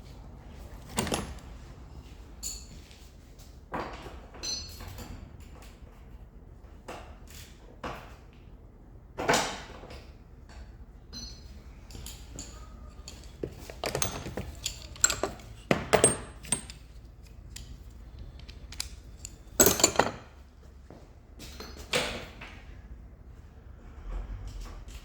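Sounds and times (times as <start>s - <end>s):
metal clanks from hand tools: 11.1s - 17.7s, 18.4s - 20.3s.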